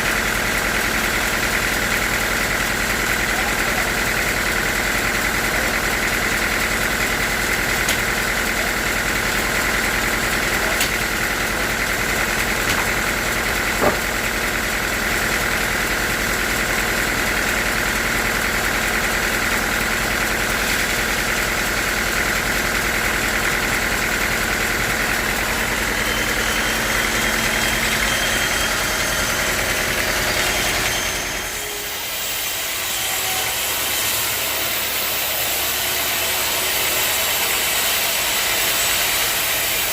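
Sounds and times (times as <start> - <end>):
sawmill machinery humming: 0.0 - 39.9
sharp knocks: 12.6 - 12.9, 13.8 - 14.1.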